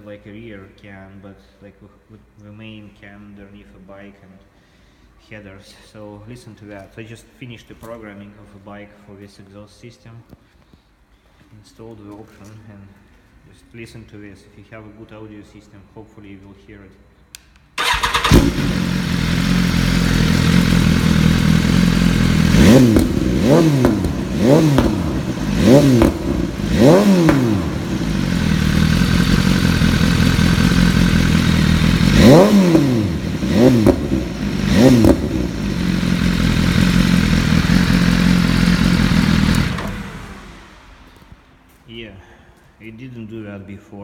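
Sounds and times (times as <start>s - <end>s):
motorcycle engine idling: 17.8s - 41.0s
engine throttle blips: 17.8s - 41.4s.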